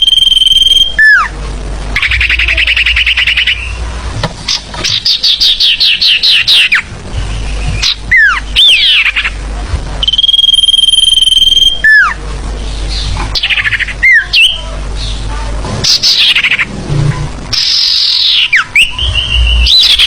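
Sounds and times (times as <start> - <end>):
low hum: 0.0 - 20.0
forest birds calling: 2.0 - 3.9, 4.5 - 9.4.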